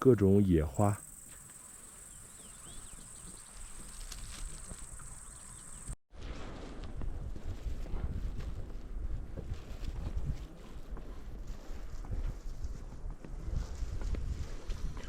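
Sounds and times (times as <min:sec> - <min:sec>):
insects chirring: 0:00.4 - 0:06.0
faint bird chirps: 0:01.2 - 0:06.0
wind rumbling on microphone: 0:02.4 - 0:15.0.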